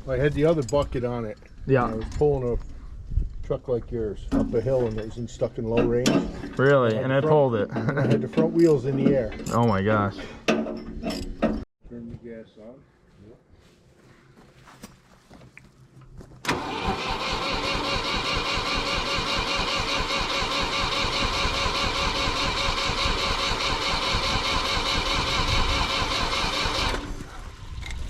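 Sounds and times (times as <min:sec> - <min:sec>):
engine starter cranking: 0:16.4 - 0:27.2
tractor engine running: 0:16.4 - 0:27.3.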